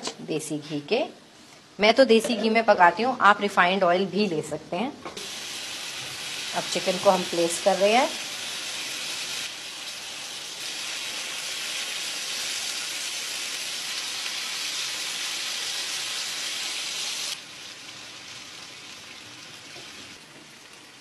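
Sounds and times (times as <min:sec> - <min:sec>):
chicken sizzling in a pan: 0:05.2 - 0:21.0.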